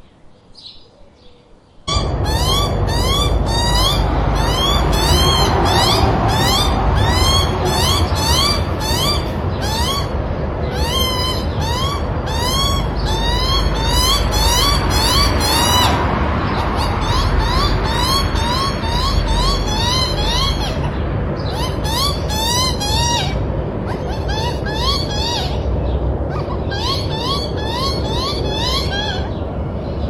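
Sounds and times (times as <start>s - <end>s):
young birds begging calls: 1.9s - 29.6s
steady low rumble: 1.9s - 30.0s.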